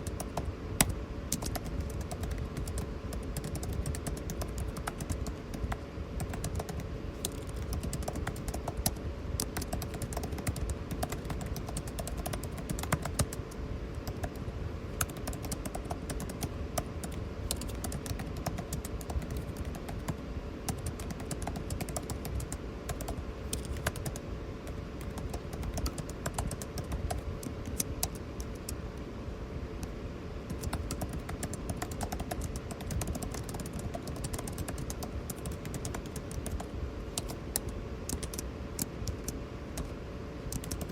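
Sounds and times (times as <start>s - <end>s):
keyboard key clicks: 0.0s - 13.4s
air conditioning hum: 0.0s - 40.9s.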